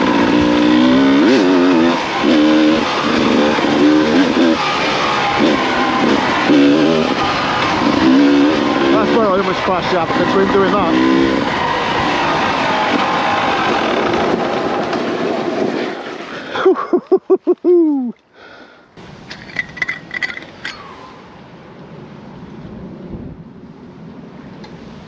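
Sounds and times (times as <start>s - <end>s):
two-stroke motorcycle engine: 0.0s - 15.8s
wind noise: 22.6s - 25.0s.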